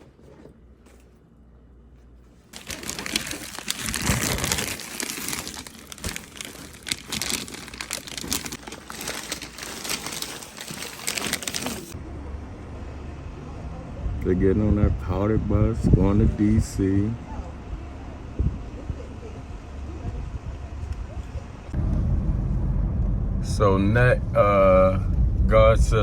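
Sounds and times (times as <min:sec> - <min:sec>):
crinkling and rustling: 0:00.0 - 0:12.0
dense crackles: 0:02.5 - 0:12.0.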